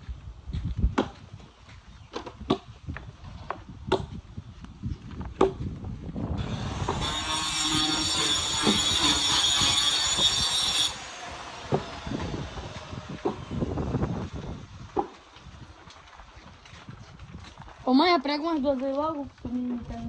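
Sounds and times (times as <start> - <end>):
power saw whining: 6.4 - 15.4.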